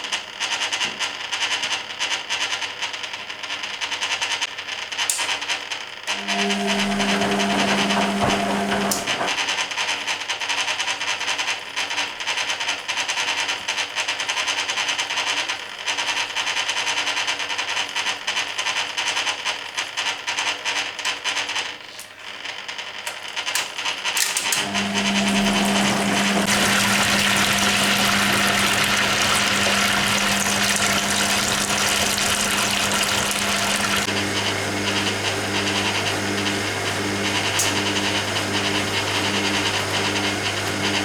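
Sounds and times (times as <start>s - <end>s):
water sloshing in washing machine: 6.1s - 9.4s, 24.4s - 41.0s
washing machine hum: 6.1s - 9.5s, 24.2s - 41.0s.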